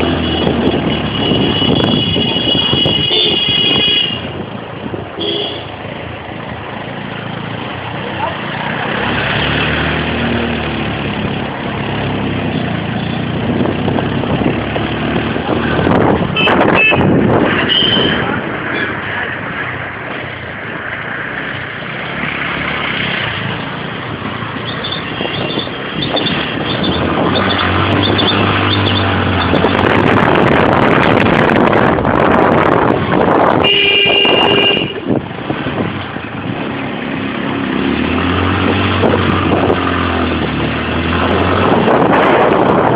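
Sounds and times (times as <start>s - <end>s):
vehicle and road noise: 0.0s - 42.9s
vehicle horns honking: 0.1s - 4.4s, 5.2s - 5.7s, 16.3s - 18.9s, 33.6s - 35.1s.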